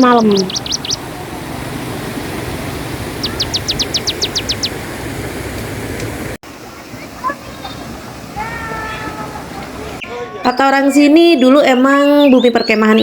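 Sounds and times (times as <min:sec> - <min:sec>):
bird trilling: 0:00.0 - 0:05.2, 0:06.9 - 0:13.0
river water rushing: 0:00.0 - 0:10.1.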